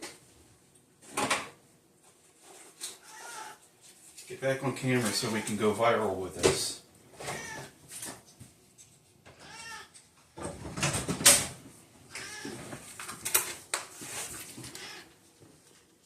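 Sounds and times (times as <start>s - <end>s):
cat meowing: 3.0s - 3.6s, 7.2s - 7.8s, 9.4s - 9.9s, 12.1s - 12.6s, 14.7s - 15.1s.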